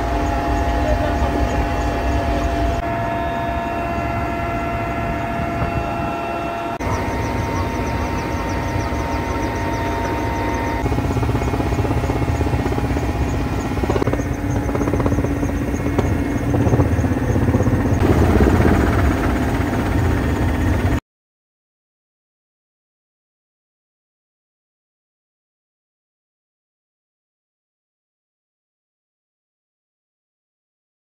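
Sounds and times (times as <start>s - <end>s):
helicopter rumble: 0.0s - 21.0s.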